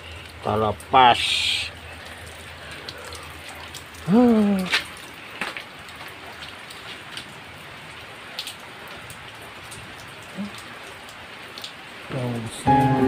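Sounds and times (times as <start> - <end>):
raindrops tapping: 0.0 - 13.0
steady rain: 0.0 - 13.0.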